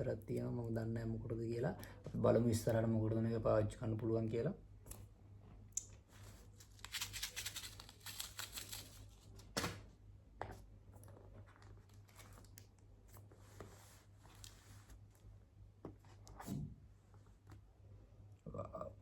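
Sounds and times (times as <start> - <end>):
low steady hum: 0.0 - 19.0
packaging rustling and tearing: 6.3 - 9.8.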